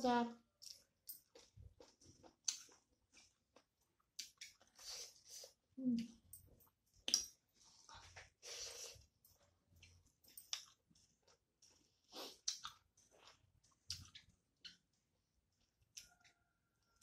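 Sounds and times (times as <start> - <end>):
person chewing food: 0.5 - 17.0
wet mouth clicks: 7.0 - 7.4, 12.2 - 12.8.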